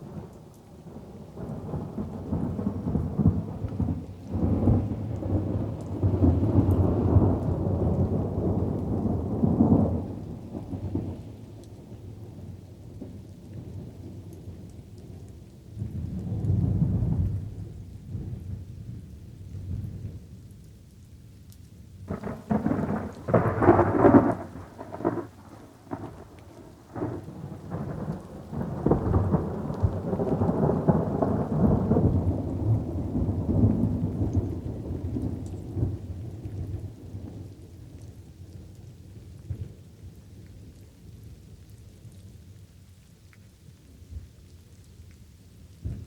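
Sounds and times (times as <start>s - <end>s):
rolling thunder rumble: 0.0s - 11.2s, 15.8s - 20.2s, 22.1s - 38.5s, 45.8s - 46.0s
crackling thunderclaps: 0.0s - 20.3s, 22.1s - 40.8s, 45.8s - 46.0s
light rain: 0.0s - 46.0s.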